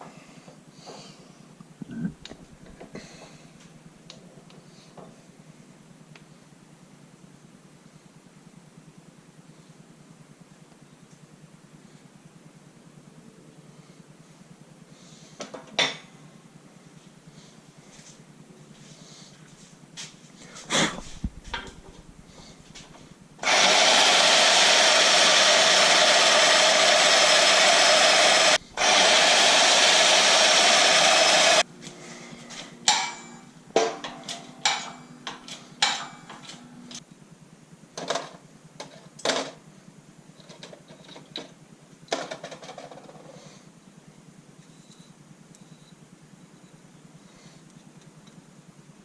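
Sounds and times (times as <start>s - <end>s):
shop tool running: 23.4s - 31.7s.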